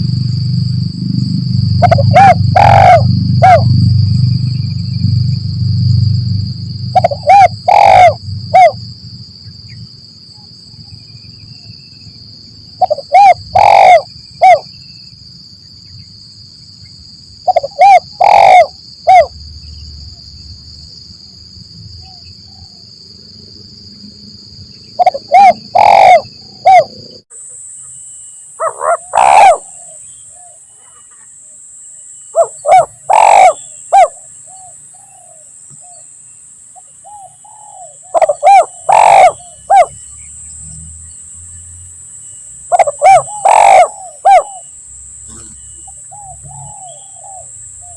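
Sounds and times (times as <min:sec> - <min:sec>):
steady high-pitched whine: 0:00.0 - 0:47.9
dove cooing: 0:01.7 - 0:03.8, 0:06.9 - 0:08.8, 0:12.8 - 0:14.7, 0:17.4 - 0:19.3, 0:25.0 - 0:27.1, 0:28.6 - 0:31.0, 0:32.4 - 0:36.0, 0:37.1 - 0:39.9, 0:42.7 - 0:44.7, 0:45.3 - 0:47.9.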